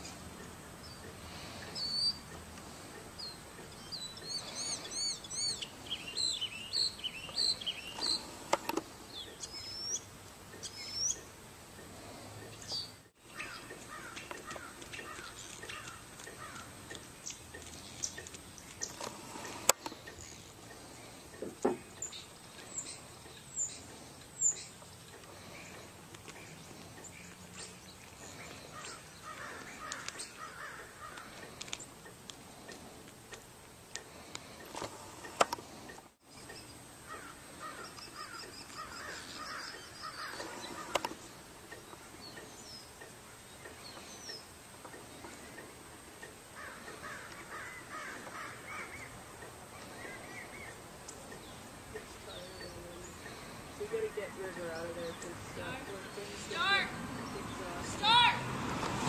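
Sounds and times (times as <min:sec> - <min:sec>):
faint outdoor background: 0:00.0 - 0:59.0
crow-like caws: 0:13.4 - 0:16.7, 0:28.7 - 0:31.4, 0:37.1 - 0:41.0, 0:46.6 - 0:49.1.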